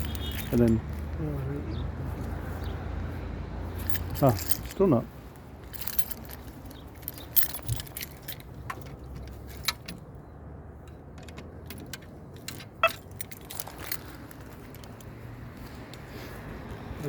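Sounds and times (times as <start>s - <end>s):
keys jangling: 0.0s - 1.0s, 3.7s - 10.2s, 10.8s - 15.3s.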